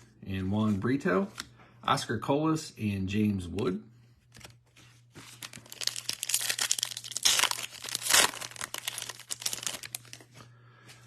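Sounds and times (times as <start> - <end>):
foil wrapper tearing and crinkling: 5.4 - 10.3.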